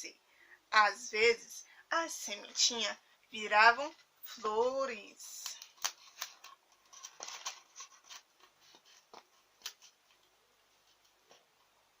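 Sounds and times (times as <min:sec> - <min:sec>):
soft rustles: 0:05.4 - 0:11.8.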